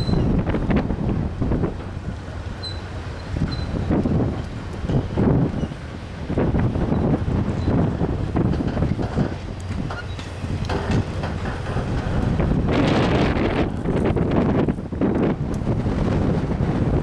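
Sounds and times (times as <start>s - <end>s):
freight train cars rumbling: 0.0s - 17.0s
wind buffeting microphone: 0.0s - 17.0s
train wheels clicking: 6.6s - 14.4s.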